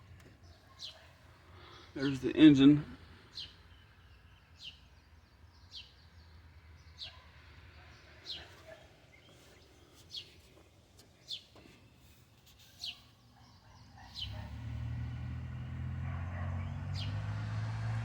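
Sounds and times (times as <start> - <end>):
faint background noise: 0.0 - 18.0
bird chirping: 8.3 - 15.2.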